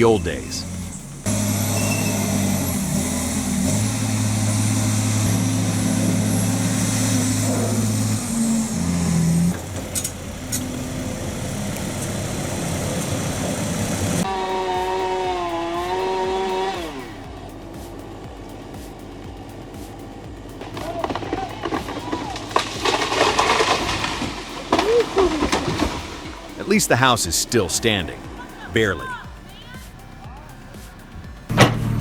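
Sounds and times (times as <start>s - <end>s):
small engine wavering pitch: 0.0s - 20.0s
diesel engine running: 0.0s - 32.0s.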